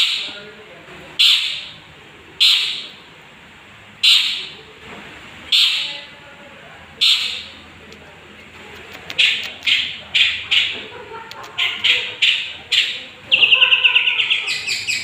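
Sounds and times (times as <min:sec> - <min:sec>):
bird giving harsh scratchy calls: 0:01.2 - 0:01.7, 0:02.4 - 0:02.9, 0:04.0 - 0:04.5, 0:07.0 - 0:07.6, 0:08.7 - 0:15.0.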